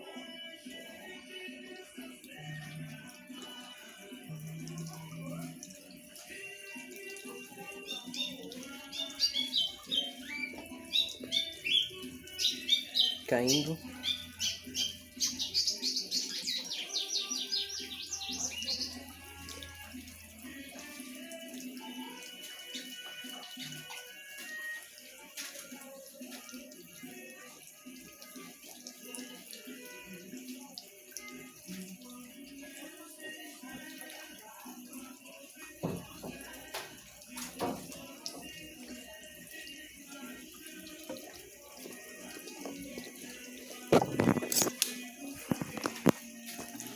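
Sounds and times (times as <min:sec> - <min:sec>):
washing machine filling with water: 0:00.1 - 0:46.9
bird chirping: 0:07.8 - 0:19.1.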